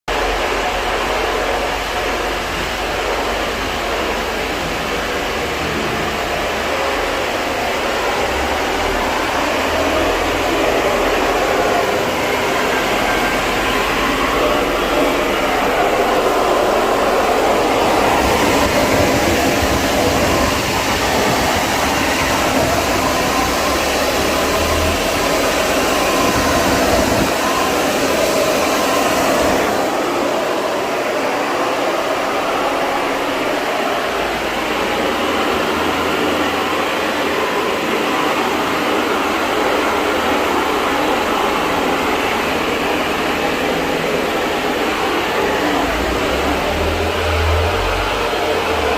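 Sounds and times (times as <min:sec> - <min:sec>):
cleaning equipment rushing noise: 0:00.1 - 0:48.9.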